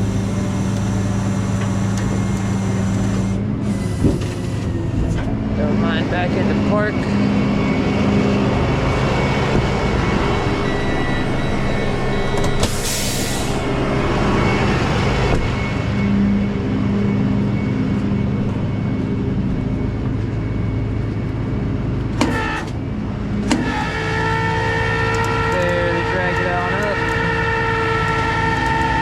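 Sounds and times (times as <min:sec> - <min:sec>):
tow truck engine idling: 0:00.0 - 0:05.0.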